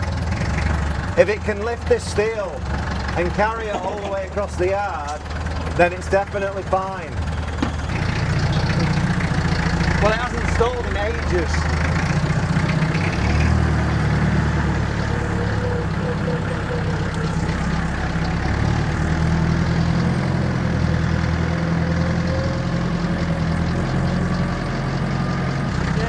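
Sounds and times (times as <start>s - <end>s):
diesel forklift engine running: 0.0s - 26.0s.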